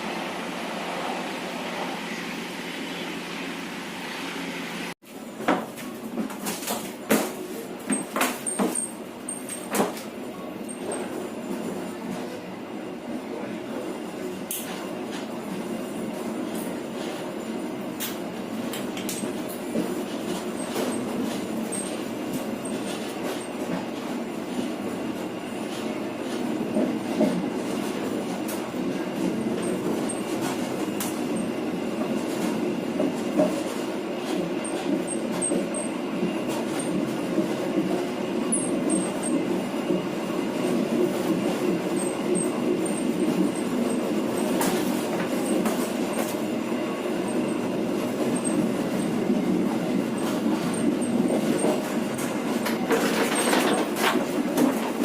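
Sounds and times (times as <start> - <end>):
train rumble: 0.0 - 55.0
train carriage knocking: 5.4 - 12.3, 17.9 - 55.0.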